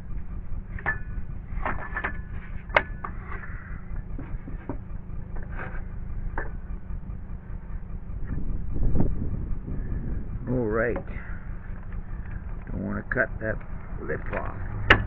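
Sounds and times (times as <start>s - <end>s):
steady low rumble: 0.0s - 15.0s
tools and lumber clattering: 0.7s - 6.8s, 13.6s - 15.0s.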